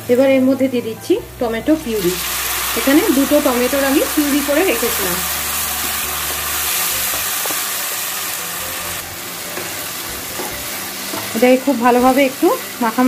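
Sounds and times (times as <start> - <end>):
food sizzling in hot oil: 0.0 - 13.0
spatula tapping pan: 7.0 - 7.7.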